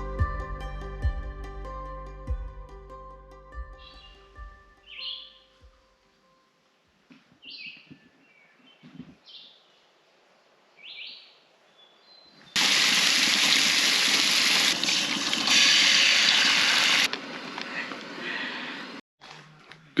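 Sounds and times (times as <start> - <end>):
bird chirps: 4.8 - 5.5.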